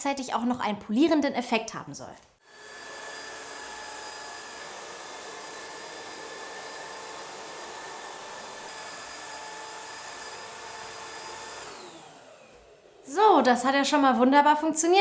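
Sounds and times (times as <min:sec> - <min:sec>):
stick vacuum running: 0:02.5 - 0:13.6.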